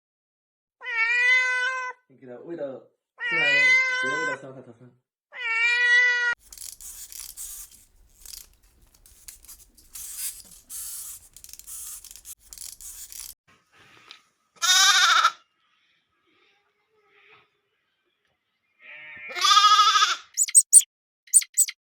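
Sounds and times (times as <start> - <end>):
scratchy rustling: 6.4 - 13.4
pitched animal call: 21.4 - 21.7.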